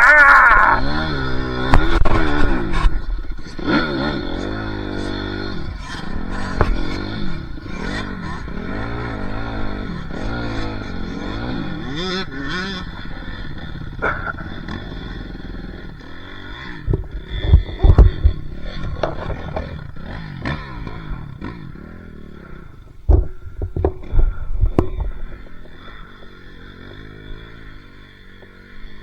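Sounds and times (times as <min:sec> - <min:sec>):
dirt bike engine revving: 0:00.0 - 0:29.0
heavy thumps: 0:16.6 - 0:21.7, 0:22.5 - 0:26.4.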